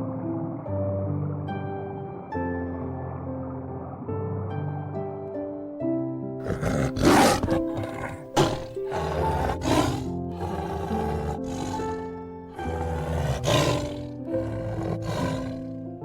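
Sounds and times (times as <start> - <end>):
gentle background music: 0.0 - 16.0
large animal roaring: 6.4 - 15.9.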